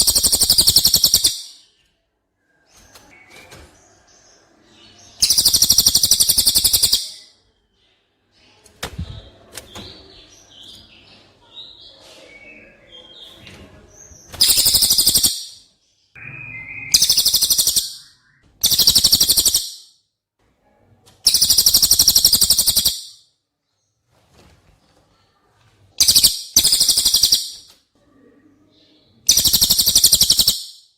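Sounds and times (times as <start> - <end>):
bird rattling trills: 0.0 - 1.4, 5.2 - 7.1, 14.4 - 15.6, 16.9 - 19.8, 21.3 - 23.1, 26.0 - 27.6, 29.3 - 30.7
bird whistling soft notes: 16.2 - 19.6.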